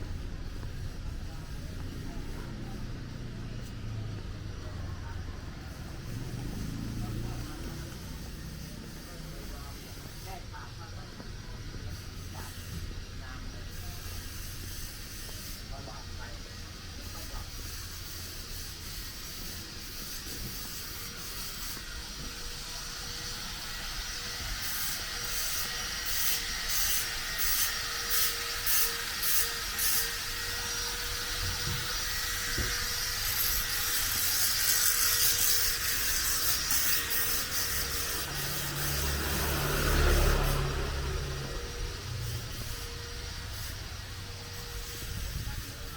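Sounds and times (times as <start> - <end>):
traffic hum: 0.0 - 45.9
vehicle passing with low rumble: 1.2 - 12.4, 36.8 - 45.9
repeated scraping: 16.6 - 45.9.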